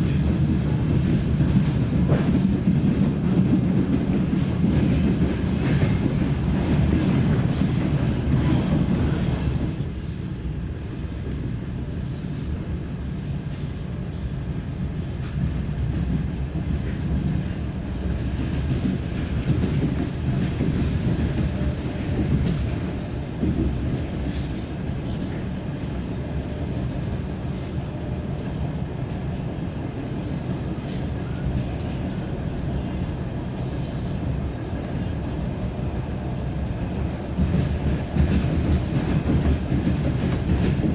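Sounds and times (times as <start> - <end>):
train rumbling: 0.0 - 40.9.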